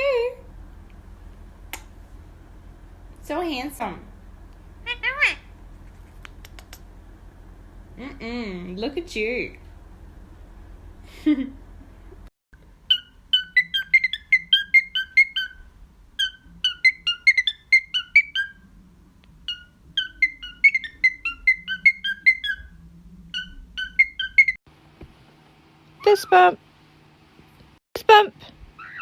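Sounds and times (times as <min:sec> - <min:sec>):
bird whistling a tune: 0:12.9 - 0:18.6, 0:19.4 - 0:24.6, 0:28.8 - 0:29.0.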